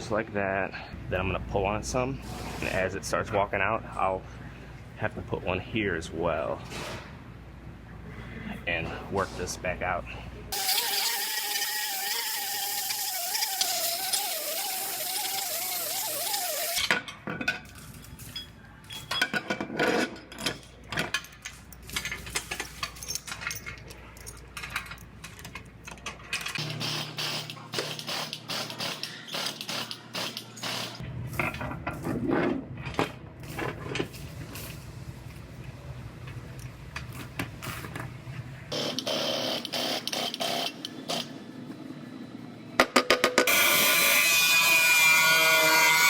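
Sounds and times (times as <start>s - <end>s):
power tool whining: 10.6s - 16.8s.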